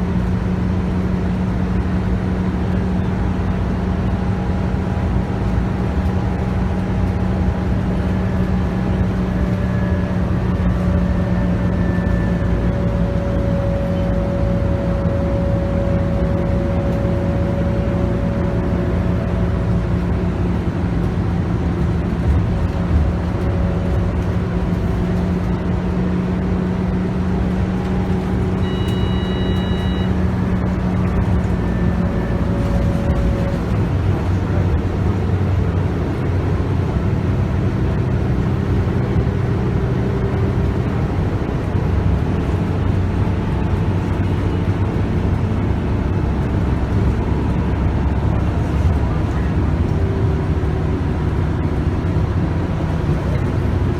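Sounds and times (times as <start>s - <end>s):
bus engine running: 0.0s - 53.9s
short high beep: 28.5s - 30.2s.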